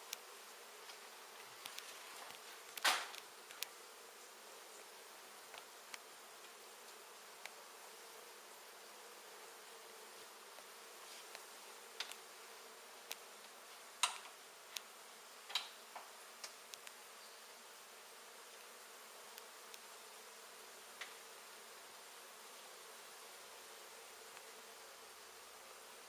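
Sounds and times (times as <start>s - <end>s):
honey bees buzzing: 0.0s - 26.0s
sharp clicks and knocks: 1.6s - 3.7s, 14.0s - 14.9s, 15.5s - 17.0s.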